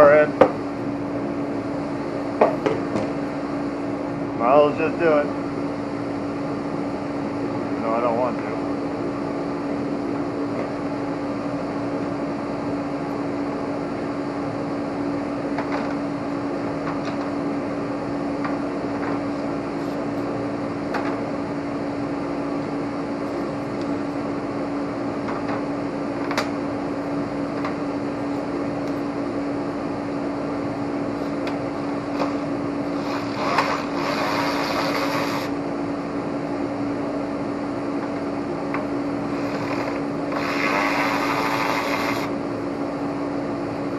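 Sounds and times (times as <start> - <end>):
steady machine hum: 0.0 - 43.9
loud hiss: 33.0 - 35.5, 39.4 - 42.3.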